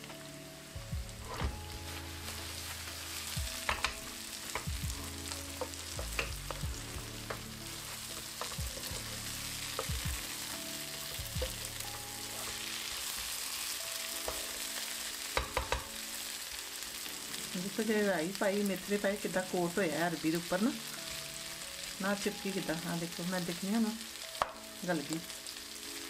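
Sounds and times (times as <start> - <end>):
food sizzling in oil: 0.0 - 26.0
stirring knocks and scrapes: 1.0 - 10.4.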